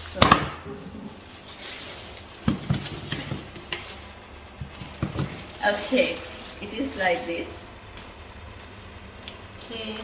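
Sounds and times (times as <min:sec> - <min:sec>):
packaging rustling: 0:00.7 - 0:07.6.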